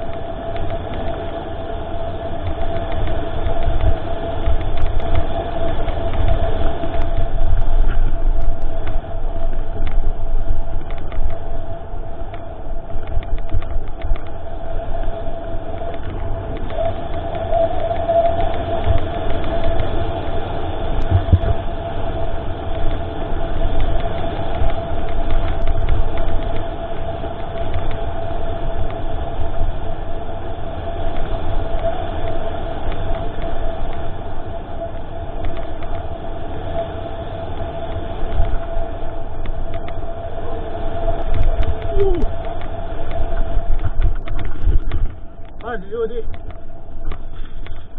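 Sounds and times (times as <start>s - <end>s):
low rumble of bike on trail: 0.0s - 47.9s
steady whine: 0.0s - 47.9s
wind buffeting: 0.0s - 47.9s
bike clicks and rattles: 10.7s - 11.4s, 12.3s - 14.4s, 41.2s - 47.9s.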